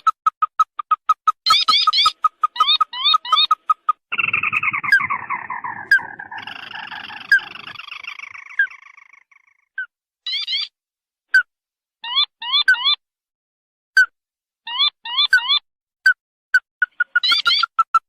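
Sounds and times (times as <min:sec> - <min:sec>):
bird whistles and clipped notes: 0:00.0 - 0:09.4
harsh bird chattering: 0:00.0 - 0:10.7, 0:16.6 - 0:18.0.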